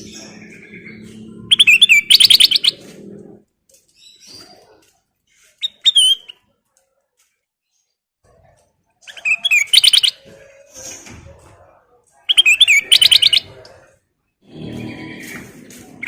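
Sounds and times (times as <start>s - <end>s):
fast bird song: 0.0s - 3.0s, 9.0s - 11.1s, 12.3s - 13.6s
bird calling: 0.0s - 3.4s.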